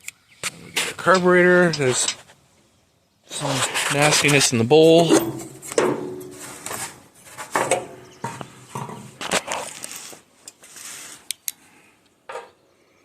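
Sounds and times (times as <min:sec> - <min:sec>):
scraping and rustling of metal parts: 0:00.5 - 0:02.4, 0:03.3 - 0:11.2.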